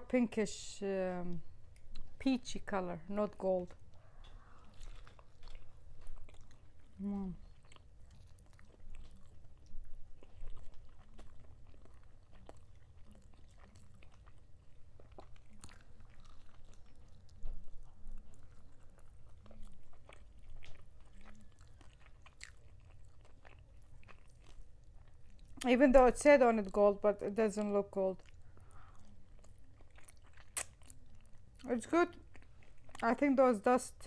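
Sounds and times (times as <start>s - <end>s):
chewing and biting meat: 3.7s - 25.7s, 28.2s - 33.2s
wet mouth clicks and smacks: 30.4s - 31.0s.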